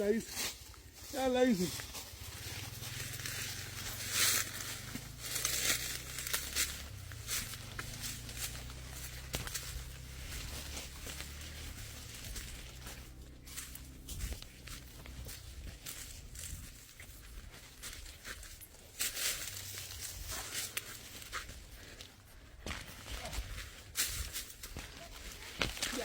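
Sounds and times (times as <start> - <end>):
dry leaves rustling and crackling: 0.0 - 26.0
twigs snapping: 4.2 - 14.4, 25.4 - 26.0
wind rumbling on microphone: 11.6 - 18.6.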